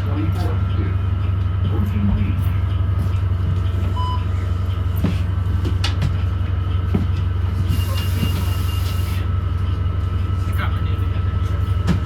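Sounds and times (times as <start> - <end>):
bus engine drone from inside: 0.0 - 12.0
brief beep: 4.0 - 4.3.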